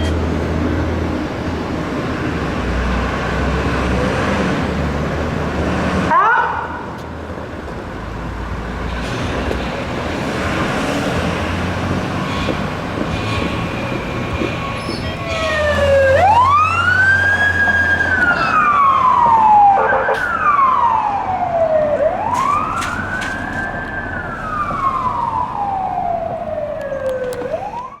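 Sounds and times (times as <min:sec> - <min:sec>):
fire truck engine rumbling: 0:00.0 - 0:28.0
siren wailing: 0:15.2 - 0:28.0.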